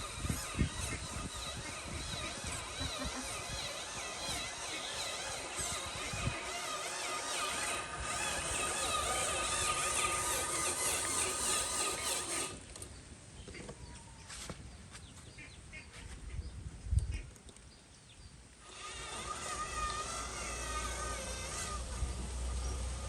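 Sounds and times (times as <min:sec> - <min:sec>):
small electric motors whining: 0:00.0 - 0:13.0, 0:18.6 - 0:23.0.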